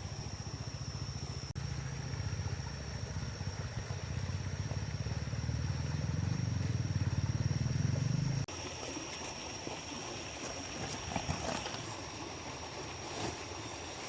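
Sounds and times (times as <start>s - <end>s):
small engine puttering: 0.0s - 9.4s.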